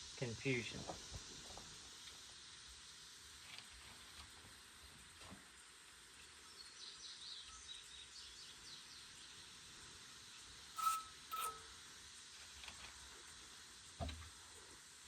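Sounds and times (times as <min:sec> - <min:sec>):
faint bird chirps: 0:06.4 - 0:09.4.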